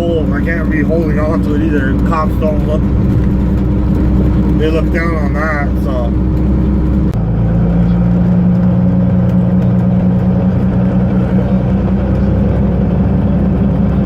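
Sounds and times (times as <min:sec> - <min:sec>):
truck diesel engine droning: 0:00.0 - 0:14.0.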